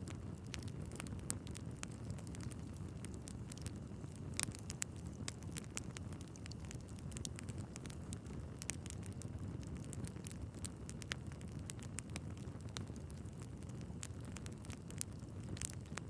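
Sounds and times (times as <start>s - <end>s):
fire rumbling: 0.0s - 16.0s
logs crackling and popping: 0.0s - 16.0s.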